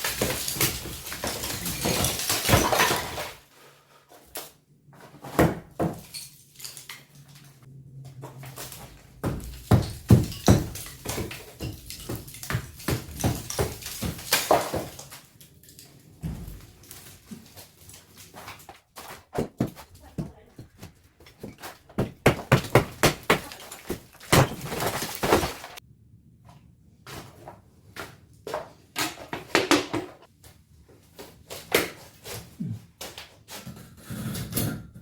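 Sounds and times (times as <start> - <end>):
knocks and thuds: 9.0 - 15.0, 19.2 - 25.8.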